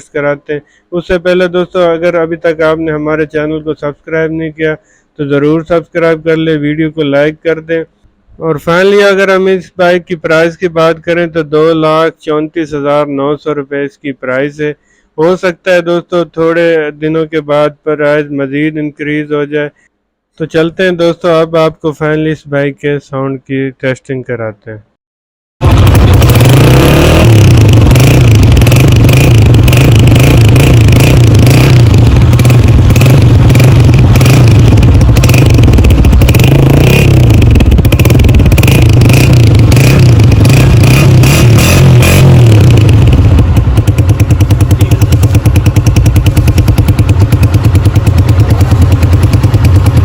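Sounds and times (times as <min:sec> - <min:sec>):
motorcycle engine revving: 0:25.6 - 0:50.0.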